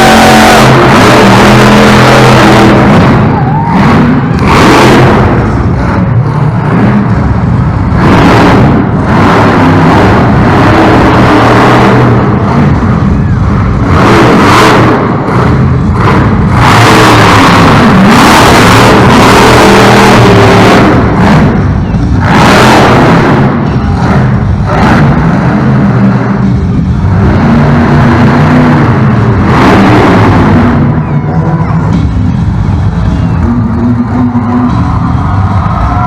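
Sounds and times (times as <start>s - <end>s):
truck engine revving hard: 0.0s - 36.0s.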